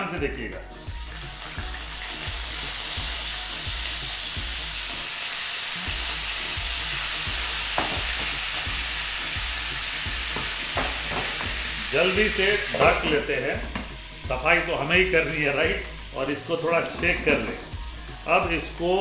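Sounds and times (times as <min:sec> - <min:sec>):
vegetables sizzling in hot oil: 0:00.8 - 0:19.0.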